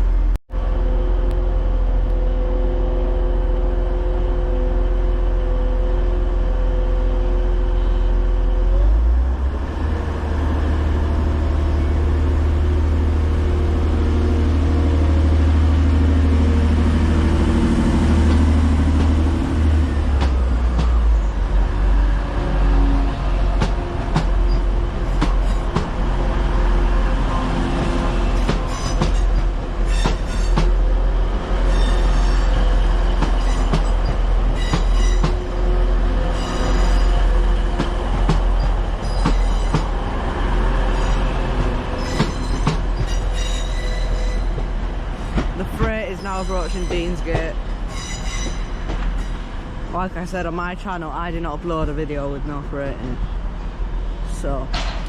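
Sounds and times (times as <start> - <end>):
train running hum: 0.0 - 55.0
train wheel squeal: 28.4 - 30.7, 31.6 - 35.4, 36.3 - 37.3, 38.6 - 39.8, 40.9 - 41.4, 42.0 - 44.6, 47.9 - 49.4
train wheels clicking over joints: 41.1 - 49.3.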